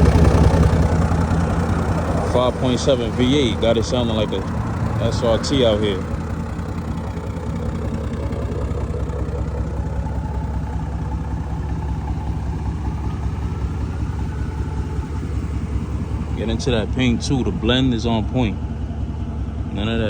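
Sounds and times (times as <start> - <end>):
engine exhaust idling: 0.0 - 20.0.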